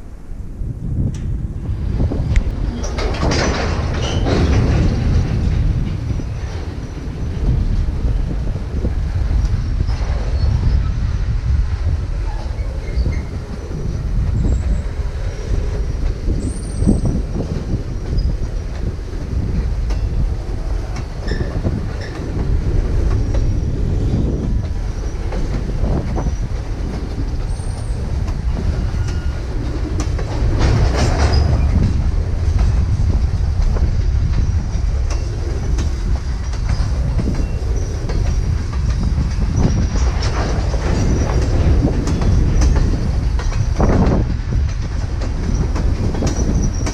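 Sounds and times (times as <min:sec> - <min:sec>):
train cars rumbling past: 0:00.0 - 0:46.9
wheels clacking over rail joints: 0:01.0 - 0:46.9
faint wheel squeal: 0:16.3 - 0:17.2, 0:21.2 - 0:22.2, 0:27.4 - 0:29.6.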